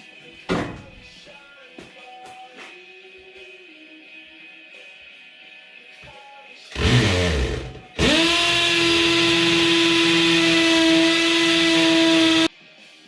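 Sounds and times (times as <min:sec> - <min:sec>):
power drill boring into masonry: 0:06.8 - 0:12.5.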